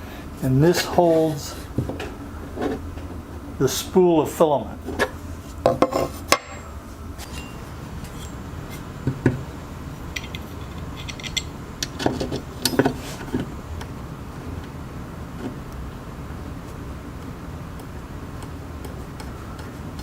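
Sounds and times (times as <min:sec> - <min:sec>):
low steady hum: 0:00.0 - 0:20.0
hard parts knocking and clicking: 0:10.1 - 0:13.5.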